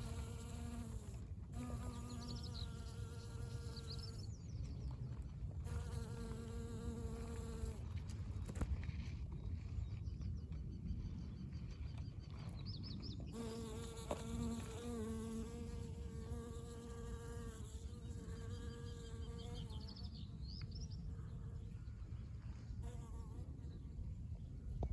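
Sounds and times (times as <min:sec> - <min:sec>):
honey bee buzzing in flight: 0:00.0 - 0:04.4, 0:05.6 - 0:07.9, 0:13.3 - 0:19.9.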